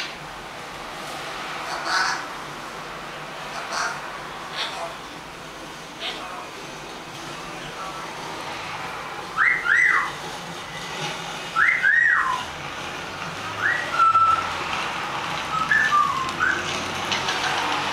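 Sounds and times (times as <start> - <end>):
parrot whistling: 9.4 - 10.2, 11.6 - 12.5, 13.6 - 14.5, 15.5 - 16.7.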